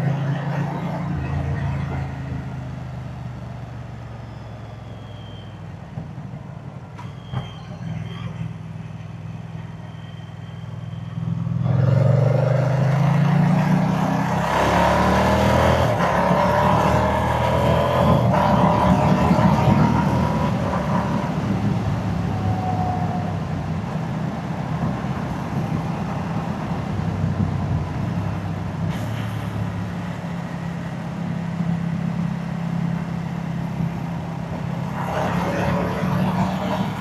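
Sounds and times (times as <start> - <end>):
motorcycle engine and exhaust: 8.3 - 37.0.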